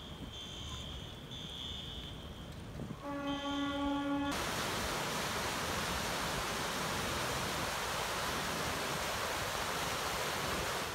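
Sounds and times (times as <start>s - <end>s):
horn-like tone: 0.0s - 4.4s.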